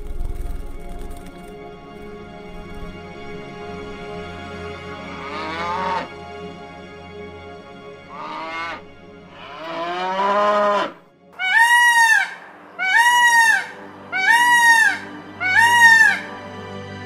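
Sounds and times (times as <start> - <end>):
calf mooing: 5.1 - 6.1, 8.1 - 11.0
peacock wailing calls: 8.1 - 16.4.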